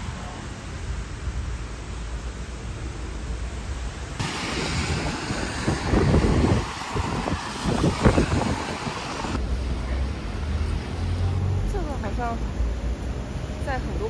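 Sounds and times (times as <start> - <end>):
wind buffeting microphone: 0.0 - 10.9
passing traffic: 0.0 - 14.0.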